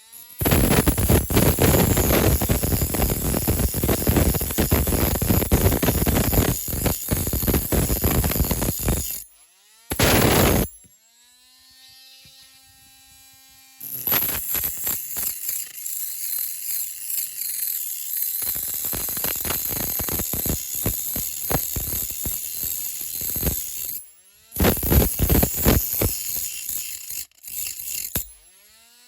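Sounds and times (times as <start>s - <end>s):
tool scraping and clicking on metal: 0.4s - 9.3s, 13.8s - 24.0s, 24.6s - 28.6s
loud rush: 10.0s - 10.7s.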